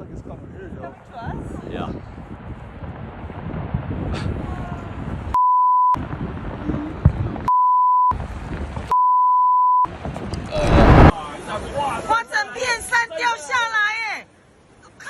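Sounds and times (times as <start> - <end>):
wind noise: 0.0 - 5.4, 6.0 - 7.5, 8.1 - 8.9, 9.9 - 11.2
censor bleep: 5.4 - 6.0, 7.5 - 8.1, 8.9 - 9.9.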